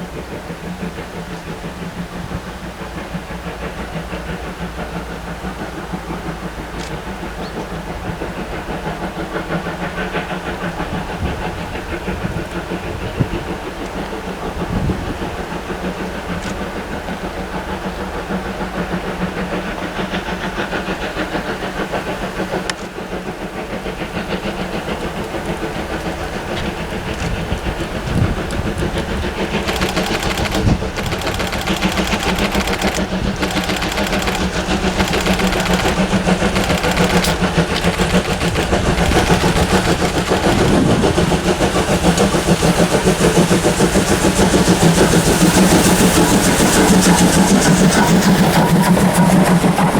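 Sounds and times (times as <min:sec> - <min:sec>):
steam locomotive chugging: 0:00.0 - 0:49.9.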